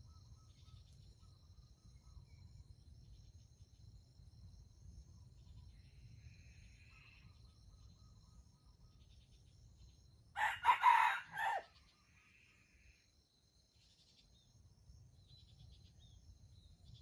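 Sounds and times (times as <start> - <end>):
rooster crowing: 10.4 - 11.7.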